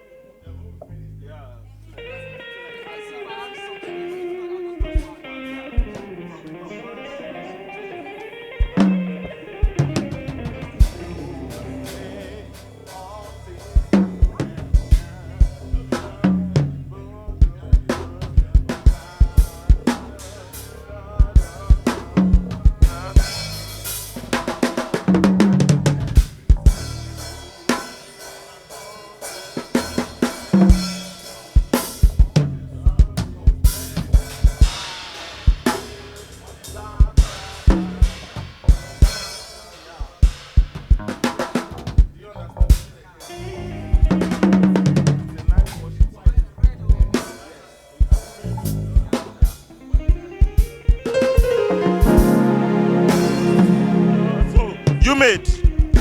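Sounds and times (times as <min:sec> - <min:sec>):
live band playing: 0:02.4 - 0:15.0, 0:43.2 - 0:45.8, 0:49.5 - 0:56.0
drum kit: 0:08.6 - 0:43.3, 0:44.0 - 0:56.0.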